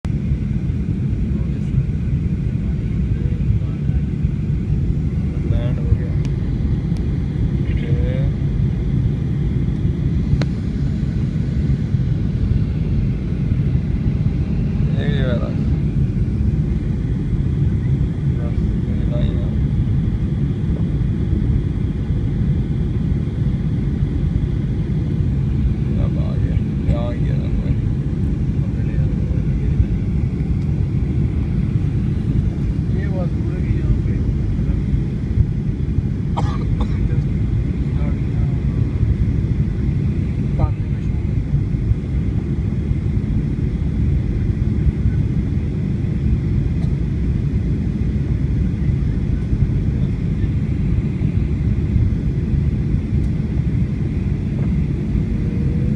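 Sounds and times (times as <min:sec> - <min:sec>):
airliner cabin engine rumble: 0:00.0 - 0:55.9.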